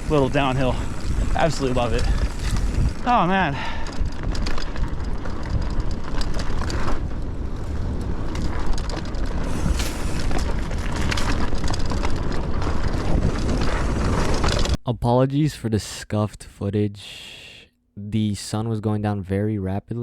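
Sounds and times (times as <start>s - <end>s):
bike rattling over rough ground: 0.0s - 14.8s
wind rush on microphone: 0.0s - 14.8s.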